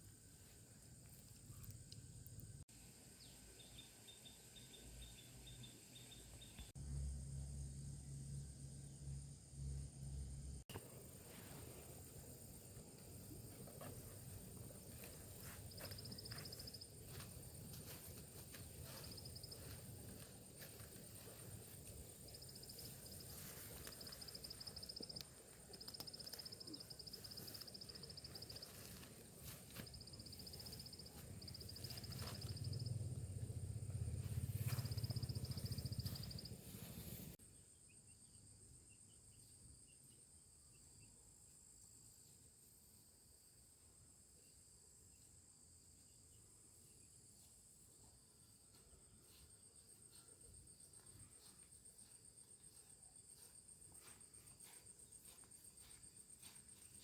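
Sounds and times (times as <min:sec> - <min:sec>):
insects trilling: 0:10.0 - 0:39.5
low rumble: 0:31.2 - 0:37.4.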